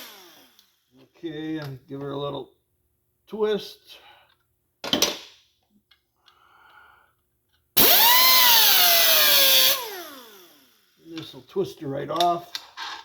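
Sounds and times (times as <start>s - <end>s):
power drill driving a pin: 7.8s - 10.7s.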